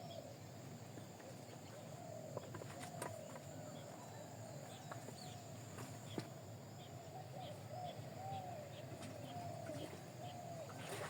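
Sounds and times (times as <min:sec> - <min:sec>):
birds making wavering low calls: 0:06.8 - 0:11.0.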